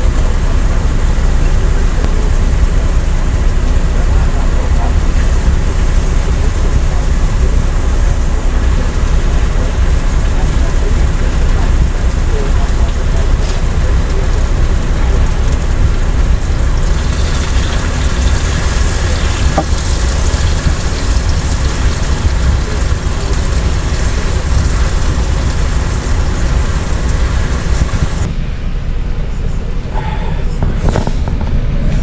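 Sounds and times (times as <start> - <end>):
steady low rumble: 0.0 - 32.0
meat sizzling in a frying pan: 16.8 - 28.2.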